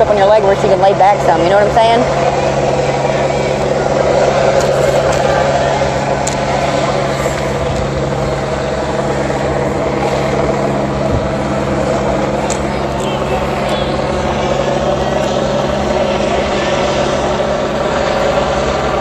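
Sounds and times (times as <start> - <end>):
helicopter rotor drone: 0.0 - 19.0.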